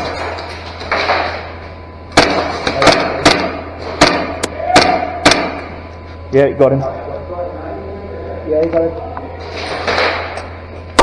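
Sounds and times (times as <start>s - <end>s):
airsoft gun shots: 2.2s - 5.6s.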